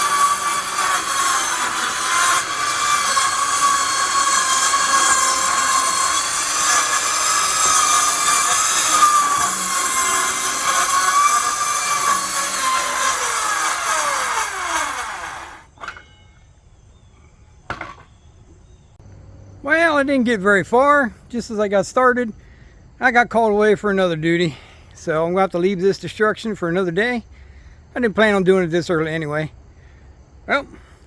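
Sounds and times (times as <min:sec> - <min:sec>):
power saw cutting: 0:00.0 - 0:15.8.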